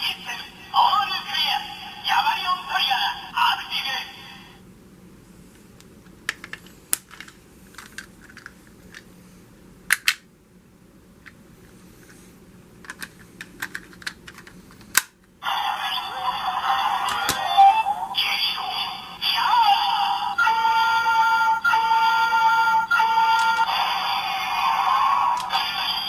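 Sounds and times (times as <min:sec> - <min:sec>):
plastic toy clicks and snaps: 0:09.9 - 0:10.3, 0:12.9 - 0:15.2, 0:25.3 - 0:25.7
toy electronic music and effects: 0:15.5 - 0:18.7, 0:19.3 - 0:26.0.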